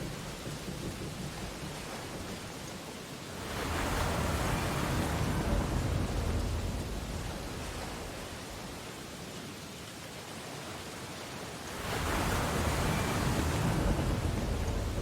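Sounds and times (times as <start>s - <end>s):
ocean wave breaking on beach: 3.3s - 8.8s, 10.9s - 15.0s.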